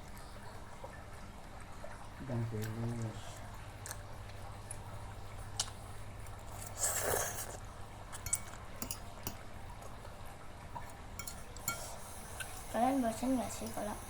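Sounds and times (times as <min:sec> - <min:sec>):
wet chewing of noodles: 0:02.6 - 0:12.7.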